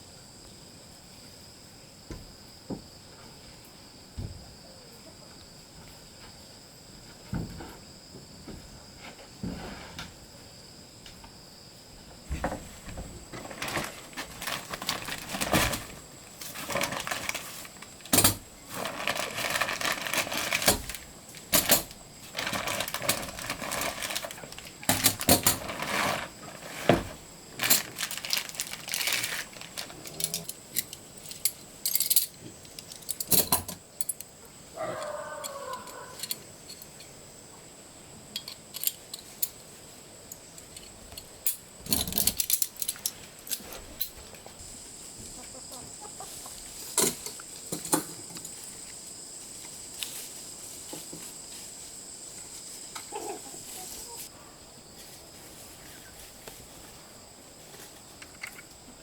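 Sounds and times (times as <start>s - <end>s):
insect chirring: 13.0s - 54.3s
small hard objects clattering: 13.2s - 33.5s.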